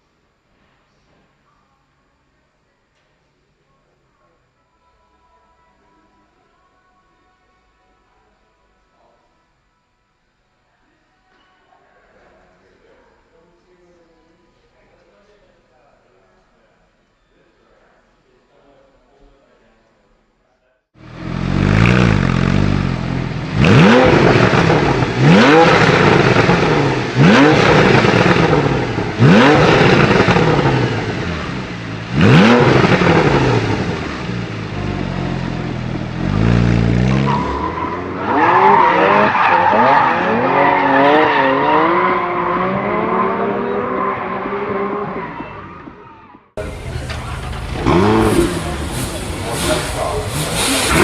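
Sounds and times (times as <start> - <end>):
car engine revving: 21.0 - 45.4, 46.6 - 51.0.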